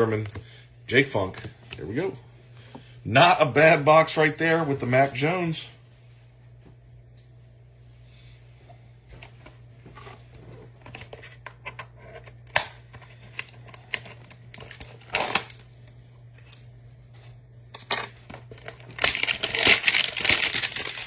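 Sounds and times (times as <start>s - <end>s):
low electrical hum: 0.0s - 21.0s
cardboard and foil tearing: 18.5s - 21.0s.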